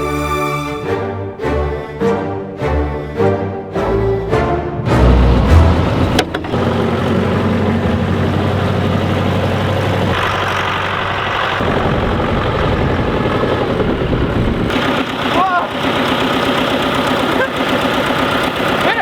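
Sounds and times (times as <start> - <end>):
tractor engine running: 4.9 - 19.0.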